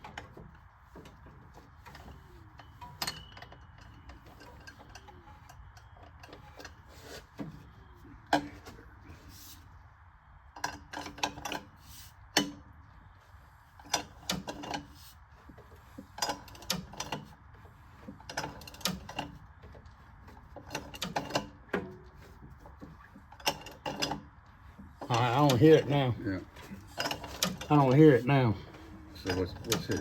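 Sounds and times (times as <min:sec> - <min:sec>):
metal clanks: 0:23.3 - 0:30.0.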